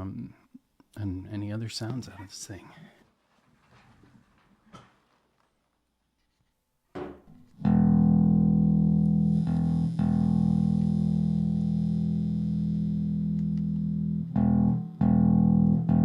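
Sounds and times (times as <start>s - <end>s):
bass guitar note ringing: 7.4s - 16.0s.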